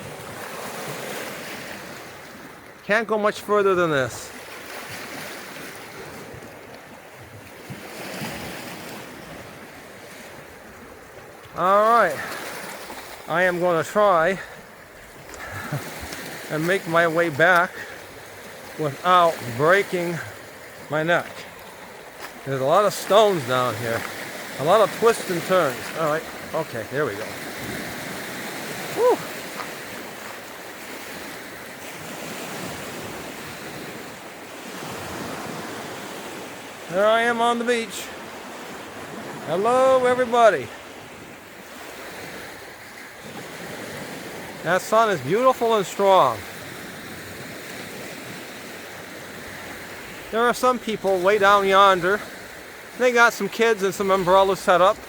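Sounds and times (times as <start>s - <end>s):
waves washing onto stony shore: 0.0s - 55.0s
short voiced exhale: 28.9s - 29.4s.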